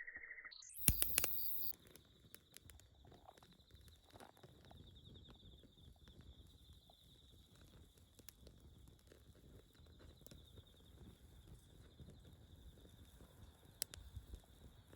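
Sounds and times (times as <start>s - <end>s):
faint high-pitched trill: 0.0s - 1.7s
faint sharp clicks: 0.7s - 4.6s.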